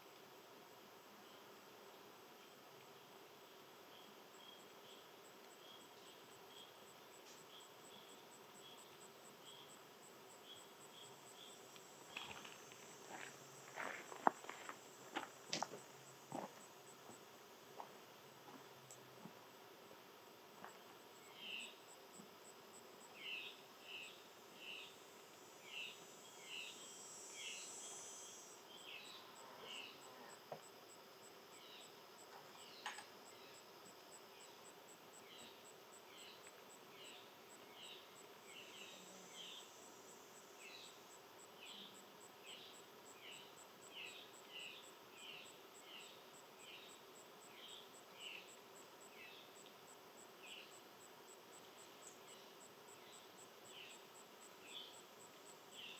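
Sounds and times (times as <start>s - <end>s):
pulsing high insect trill: 23.8s - 31.9s.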